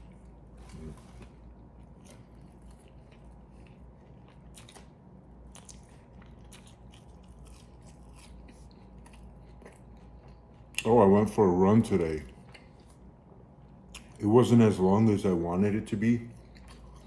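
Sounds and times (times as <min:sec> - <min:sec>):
person chewing food: 0:00.0 - 0:11.0, 0:12.2 - 0:14.2, 0:16.3 - 0:17.0.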